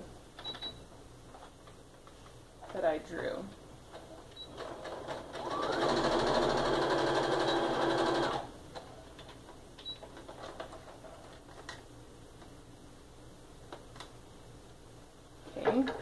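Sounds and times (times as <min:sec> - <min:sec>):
sewing machine running: 0:04.5 - 0:08.5.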